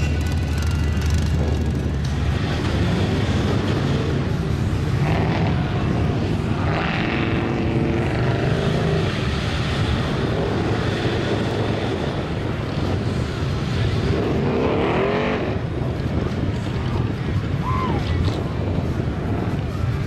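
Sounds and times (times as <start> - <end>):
truck engines droning: 0.0 - 20.0.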